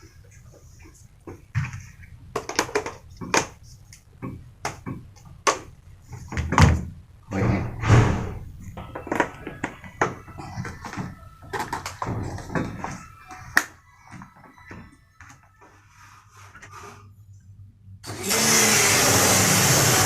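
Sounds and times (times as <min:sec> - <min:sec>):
hard objects knocking and clattering: 0:01.3 - 0:03.6, 0:08.4 - 0:14.9.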